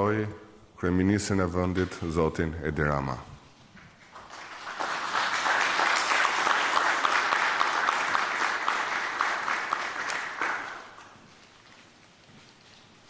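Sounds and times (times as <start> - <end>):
audience applauding: 4.1 - 11.2.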